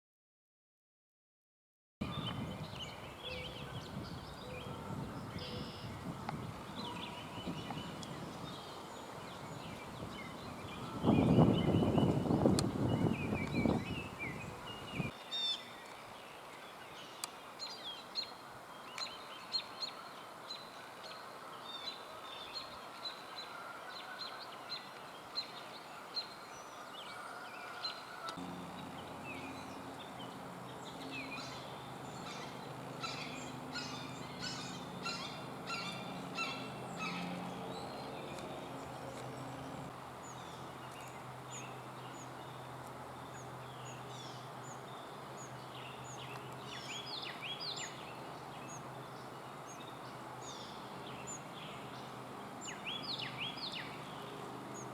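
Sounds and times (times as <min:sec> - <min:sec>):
birds chirping: 0:02.0 - 0:54.9
steady low hum: 0:28.4 - 0:47.0.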